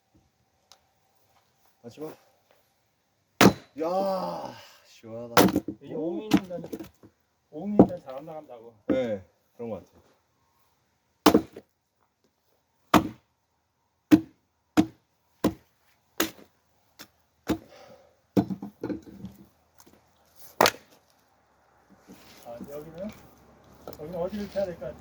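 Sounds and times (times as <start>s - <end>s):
axe blows splitting firewood: 3.4s - 3.8s, 5.4s - 6.8s, 11.2s - 11.6s, 12.9s - 13.2s, 14.1s - 15.6s, 16.2s - 16.5s, 17.4s - 17.8s, 20.5s - 21.0s.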